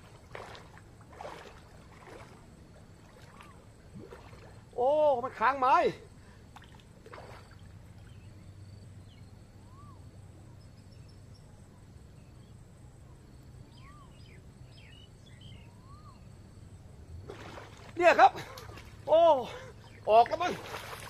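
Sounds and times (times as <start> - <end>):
low steady hum: 0.0 - 21.0
whistled bird notes: 9.0 - 11.6, 13.6 - 16.4
high bird chirps: 13.7 - 16.3.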